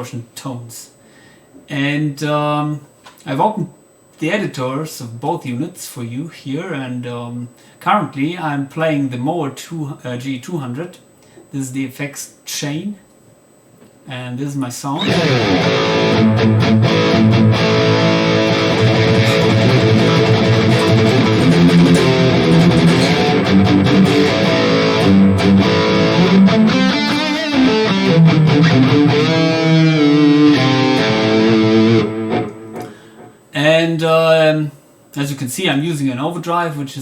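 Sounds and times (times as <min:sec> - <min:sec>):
distorted electric guitar: 0:15.0 - 0:33.4.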